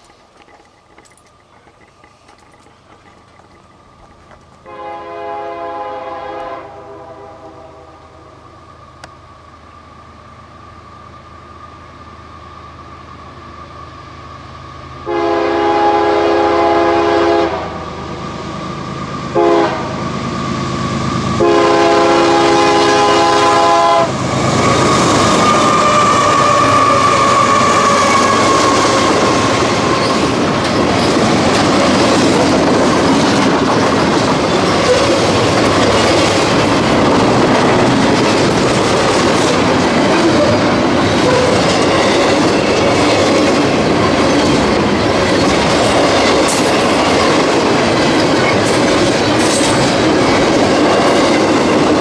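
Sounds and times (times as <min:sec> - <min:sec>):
train passing rumble: 0:00.0 - 0:52.0
locomotive air horn: 0:04.6 - 0:08.3, 0:15.0 - 0:18.0, 0:19.3 - 0:20.1, 0:21.3 - 0:30.2.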